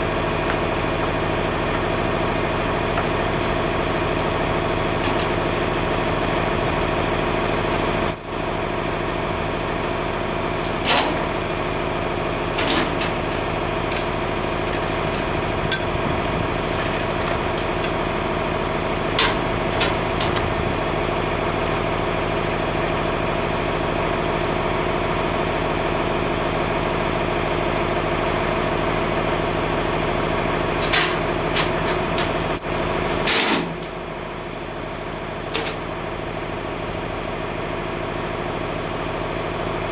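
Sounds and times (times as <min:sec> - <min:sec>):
tractor engine idling: 0:00.0 - 0:39.9
sharp metallic clanks: 0:30.8 - 0:33.9.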